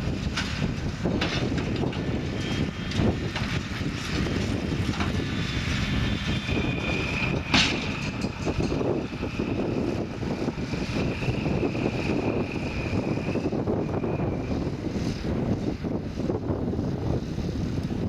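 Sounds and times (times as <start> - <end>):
tractor engine rumble: 0.0 - 18.0
thin high whine: 5.3 - 15.2.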